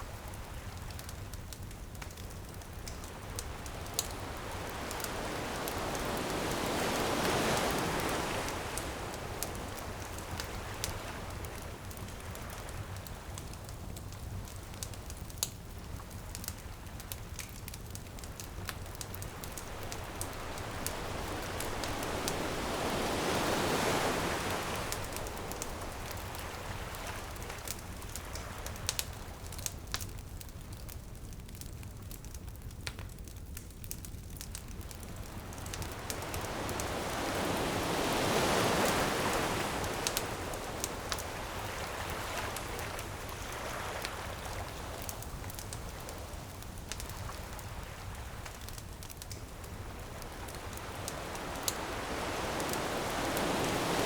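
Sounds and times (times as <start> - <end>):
ocean waves on a beach: 0.0 - 30.0, 34.4 - 54.0
bonfire crackling: 0.0 - 54.0.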